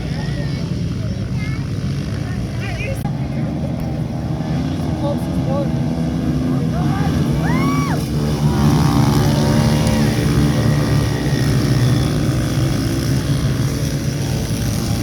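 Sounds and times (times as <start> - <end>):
pit bike engines droning: 0.0 - 15.0.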